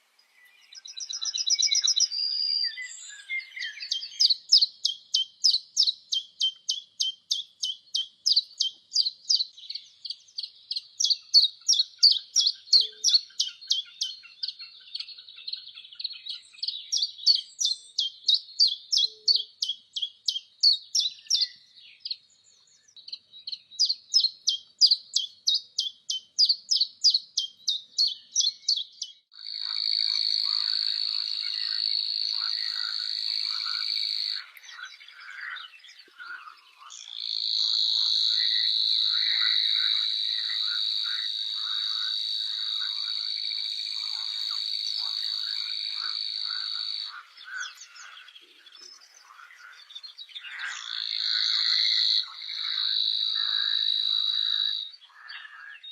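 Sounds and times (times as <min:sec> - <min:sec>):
songbird high chirps: 0:00.0 - 0:55.9
rough low bird calls: 0:23.8 - 0:55.9.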